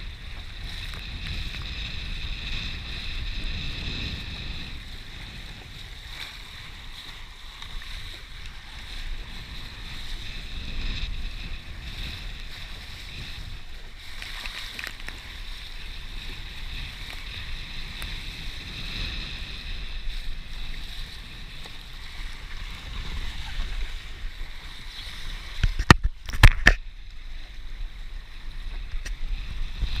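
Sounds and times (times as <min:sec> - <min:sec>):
wind noise on microphone: 0:00.0 - 0:30.0.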